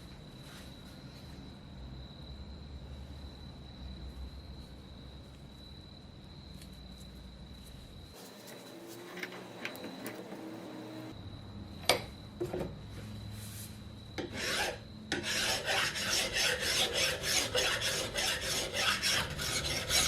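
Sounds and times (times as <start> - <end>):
rasping hand strokes on metal: 14.2 - 20.0.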